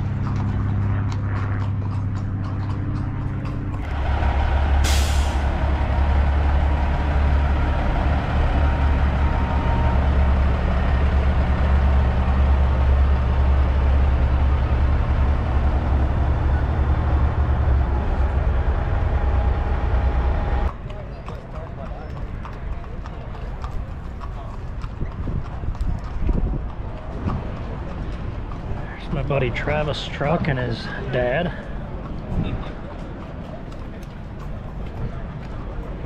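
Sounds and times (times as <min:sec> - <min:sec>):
truck diesel engine running: 0:01.9 - 0:20.7
air brakes hissing: 0:03.9 - 0:06.0.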